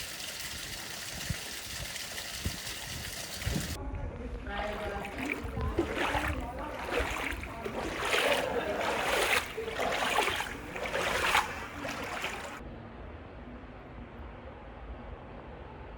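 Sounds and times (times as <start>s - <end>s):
water sloshing and splashing: 0.0s - 3.8s, 4.5s - 12.6s.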